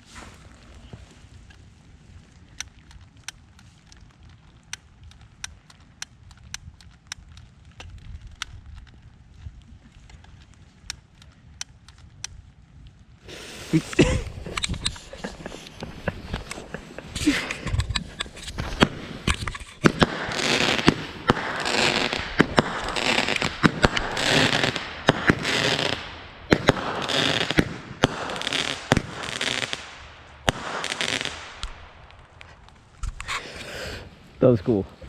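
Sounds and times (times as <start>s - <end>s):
fireworks crackling: 0.0s - 35.0s
fireworks bangs: 13.3s - 33.7s.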